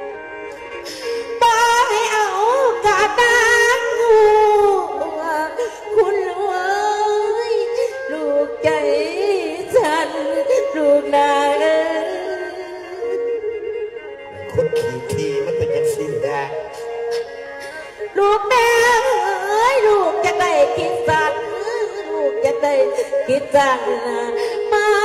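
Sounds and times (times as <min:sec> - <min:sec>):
woman singing: 0:01.2 - 0:13.7, 0:17.9 - 0:25.0.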